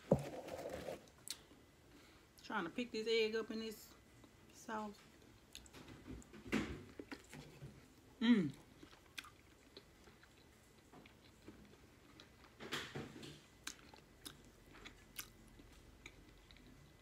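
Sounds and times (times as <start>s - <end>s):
faint chewing: 6.9s - 12.6s, 13.3s - 17.0s.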